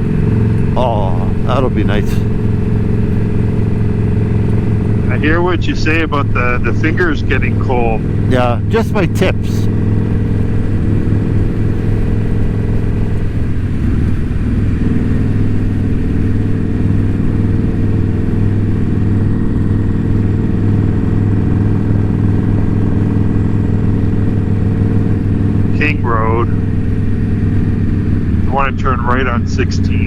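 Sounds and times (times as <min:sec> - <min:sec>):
motorcycle engine droning: 0:00.0 - 0:30.0.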